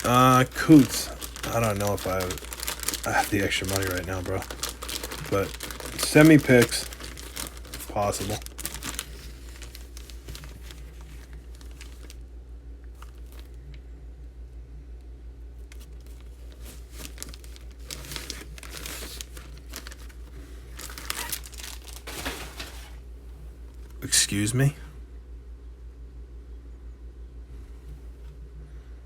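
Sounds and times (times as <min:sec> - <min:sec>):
plastic packaging crinkling: 0:00.0 - 0:12.2, 0:12.9 - 0:13.8, 0:15.6 - 0:23.0
low electrical hum: 0:00.0 - 0:29.0.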